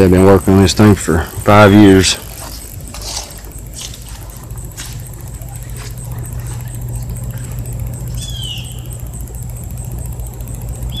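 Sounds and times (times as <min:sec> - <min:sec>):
steady low rumble: 0:00.0 - 0:11.0
bird chirp sliding downward: 0:08.1 - 0:09.2.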